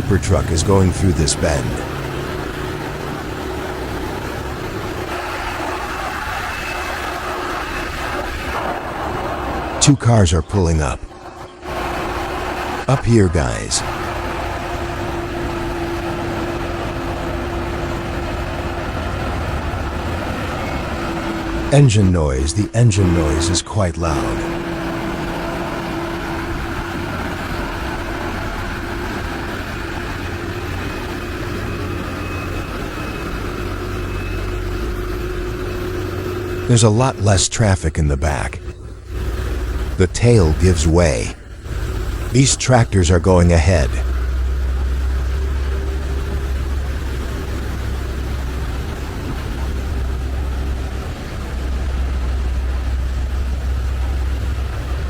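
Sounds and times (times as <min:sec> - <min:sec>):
heavy diesel engines under load: 0:00.0 - 0:55.0.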